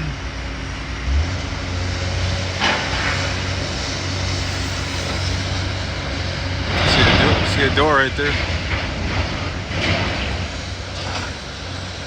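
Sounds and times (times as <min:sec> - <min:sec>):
heavy machine engine droning: 0:00.0 - 0:12.0
debris clattering: 0:02.4 - 0:12.0.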